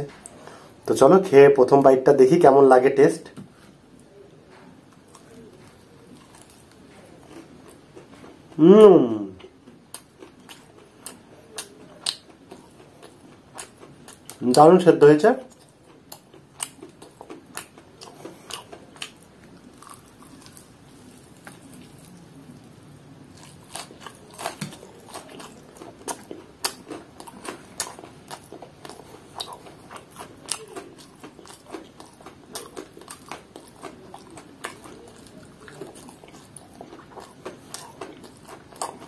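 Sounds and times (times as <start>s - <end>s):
crunchy chicken chewing: 4.9s - 8.6s, 9.4s - 14.7s, 15.5s - 39.0s.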